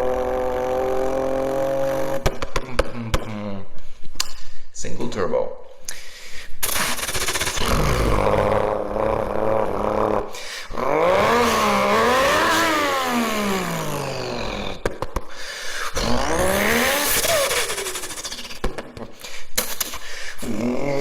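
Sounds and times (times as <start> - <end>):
car engine revving: 0.0 - 2.4, 6.6 - 14.8, 16.0 - 18.6.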